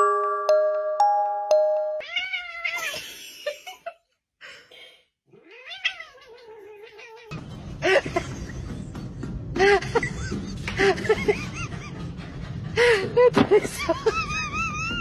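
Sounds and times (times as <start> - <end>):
glockenspiel-like notes: 0.0 - 2.0
cat meowing: 2.0 - 3.0, 5.3 - 7.4.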